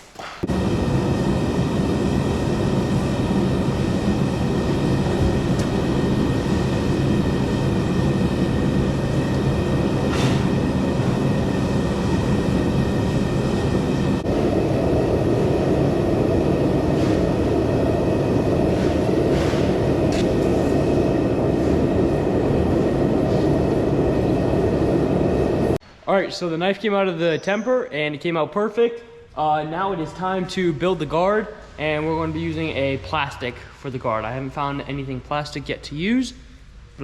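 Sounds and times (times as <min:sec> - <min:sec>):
forge roaring: 0:00.4 - 0:25.8.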